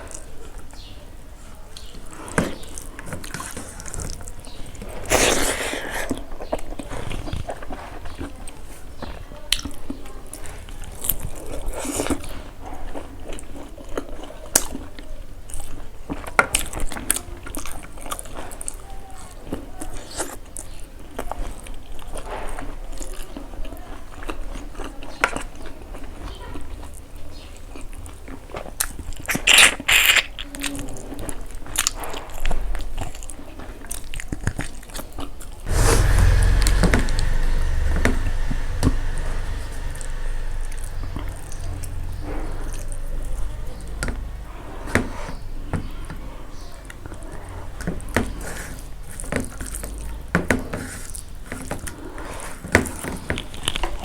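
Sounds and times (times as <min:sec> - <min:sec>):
lip smacks: 0:05.1 - 0:06.2
rushing noise with deep rumble: 0:35.7 - 0:46.6.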